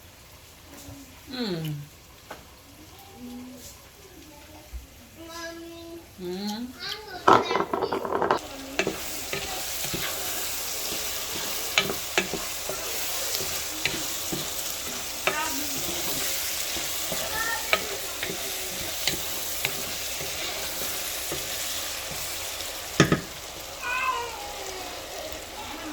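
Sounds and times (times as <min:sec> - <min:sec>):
food sizzling in a pan: 0:00.0 - 0:06.1, 0:06.7 - 0:25.9
spatula scraping a pan: 0:07.4 - 0:23.7.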